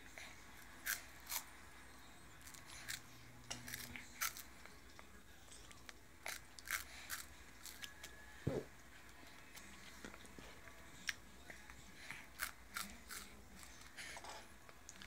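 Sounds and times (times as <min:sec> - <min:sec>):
toddler crunching corn puffs: 0:00.2 - 0:01.6, 0:02.4 - 0:08.1, 0:11.0 - 0:14.2.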